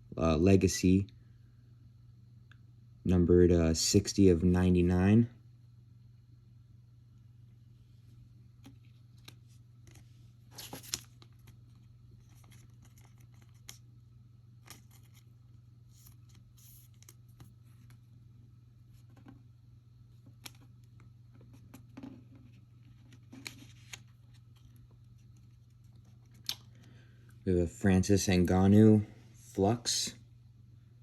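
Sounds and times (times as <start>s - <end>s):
steady low hum: 0.0s - 31.0s
trading cards rustling and clicking: 8.6s - 13.8s, 14.6s - 15.3s, 15.9s - 18.0s, 20.2s - 26.9s.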